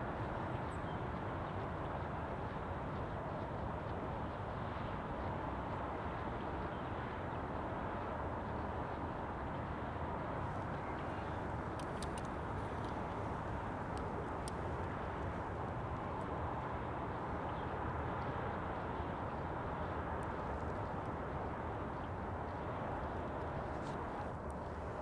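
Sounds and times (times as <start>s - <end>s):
outdoor hiss and rumble: 9.5s - 25.0s
faint short ticks: 11.0s - 15.0s.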